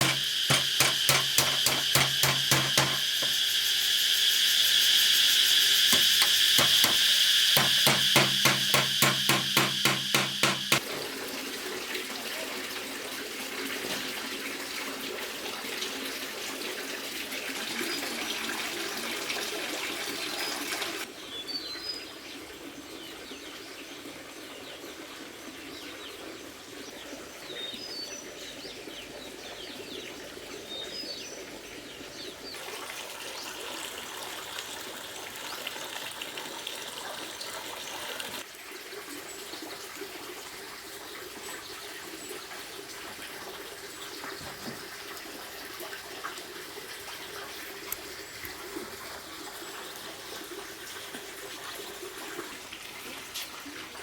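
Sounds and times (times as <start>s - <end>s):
running water: 0.0s - 21.2s, 21.9s - 54.0s
fast rhythmic pulse: 5.9s - 10.8s.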